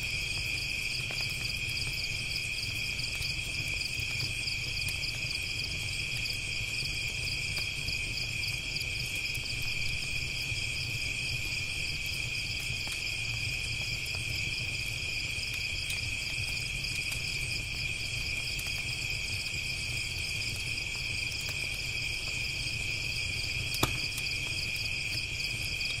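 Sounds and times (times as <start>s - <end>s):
campfire crackling: 0.0s - 26.0s
crickets chirping: 0.0s - 26.0s
sharp pop: 23.8s - 24.0s.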